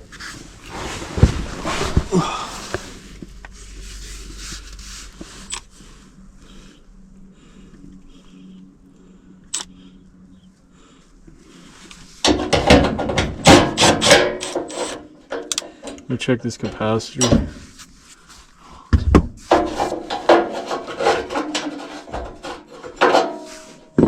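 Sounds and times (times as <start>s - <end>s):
hands rubbing and rustling: 0.0s - 5.8s
metal clattering and knocks: 12.2s - 17.6s, 19.0s - 24.0s.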